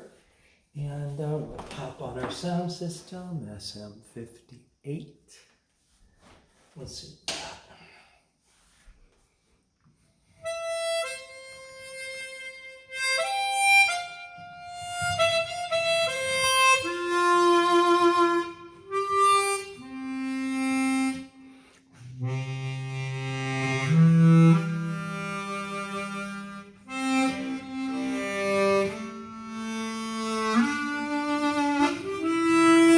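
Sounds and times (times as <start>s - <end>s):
harmonica playing single notes: 10.3s - 32.9s.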